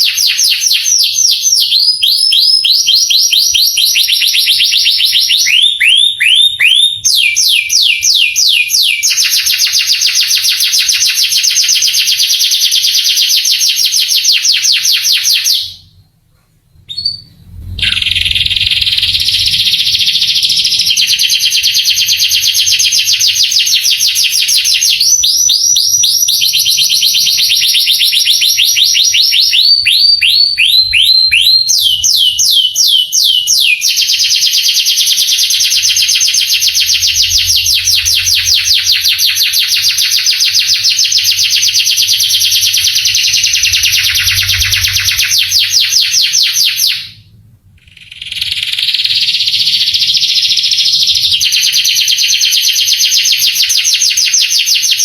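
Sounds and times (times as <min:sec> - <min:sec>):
canary singing trills: 0:16.8 - 0:47.2.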